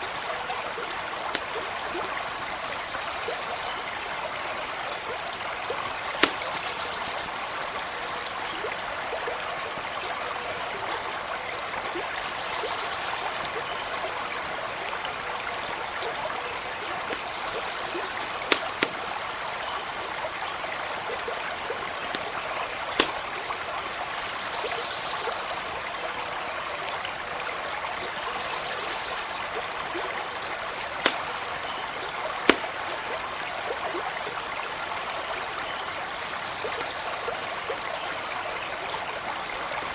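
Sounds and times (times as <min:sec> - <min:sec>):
campfire crackling and popping: 0:00.0 - 0:03.0, 0:04.0 - 0:10.1, 0:14.7 - 0:24.2, 0:29.2 - 0:37.0, 0:37.7 - 0:38.6
stream running over stones: 0:00.0 - 0:39.9.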